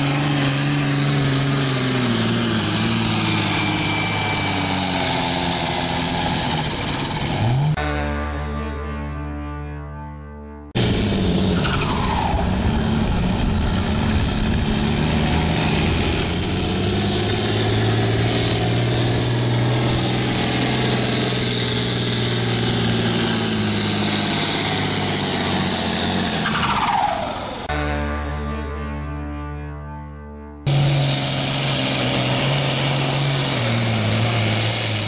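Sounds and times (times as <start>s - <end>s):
tractor engine running flat out: 0.0s - 7.8s, 10.8s - 27.8s, 30.7s - 35.0s
falling whine: 10.8s - 27.7s.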